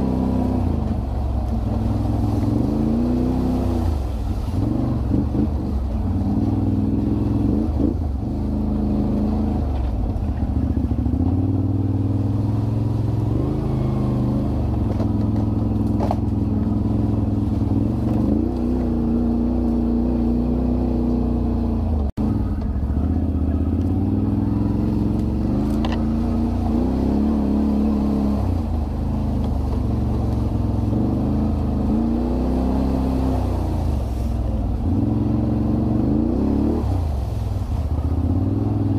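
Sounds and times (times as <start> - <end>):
atv engine revving: 0.0 - 38.9.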